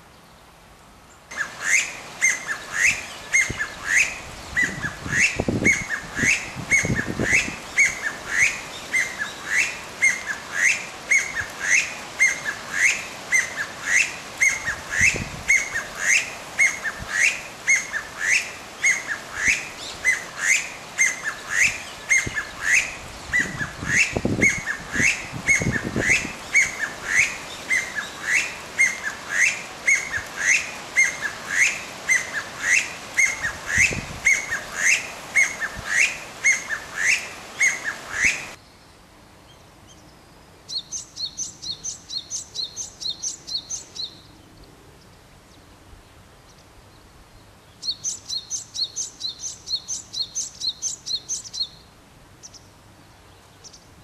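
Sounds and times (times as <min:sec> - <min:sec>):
bird rising whistled call: 0:01.3 - 0:38.6.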